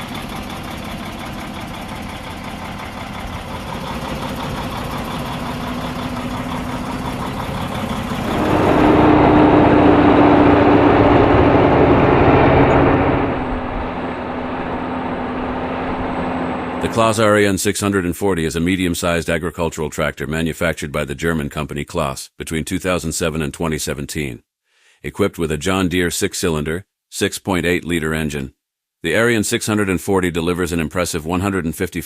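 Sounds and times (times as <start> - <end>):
tractor diesel engine revving: 0.0 - 17.4.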